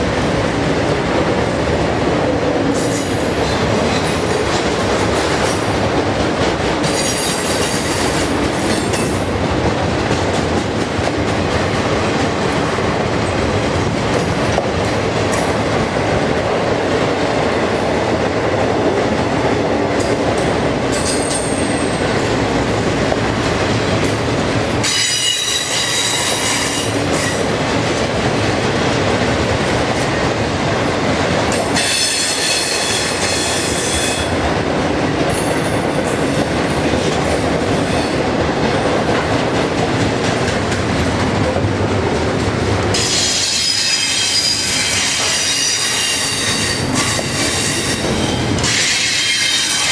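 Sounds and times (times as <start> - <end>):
train wheels rumbling on rail: 0.0 - 49.9
high-pitched wheel squeal: 43.0 - 49.9.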